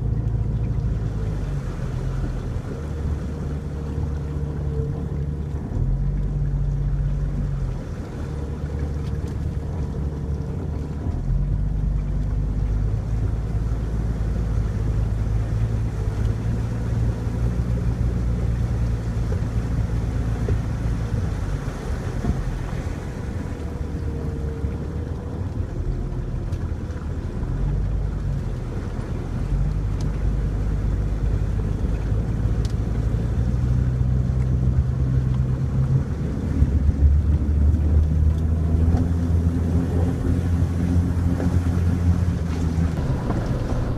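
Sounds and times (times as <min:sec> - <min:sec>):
car engine droning: 0:00.0 - 0:43.9
tyres rumbling on dirt road: 0:00.0 - 0:43.9.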